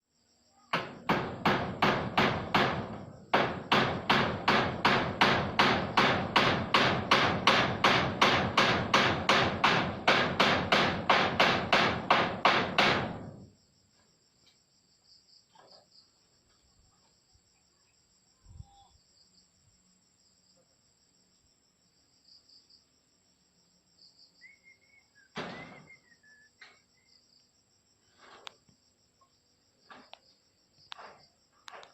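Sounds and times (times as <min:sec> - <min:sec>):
high insect trill: 0:00.0 - 0:31.9
hammer nailing metal sheeting: 0:00.7 - 0:13.5, 0:25.4 - 0:26.0.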